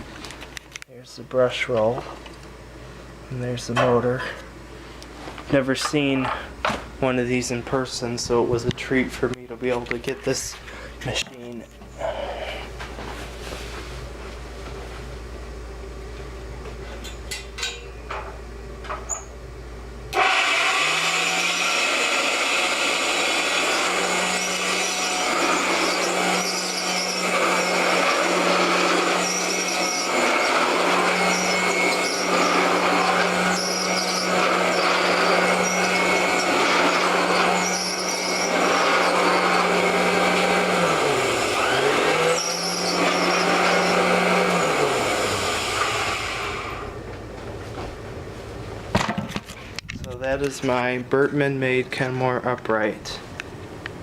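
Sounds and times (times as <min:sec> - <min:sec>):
vacuum cleaner motor humming: 0:20.1 - 0:47.0.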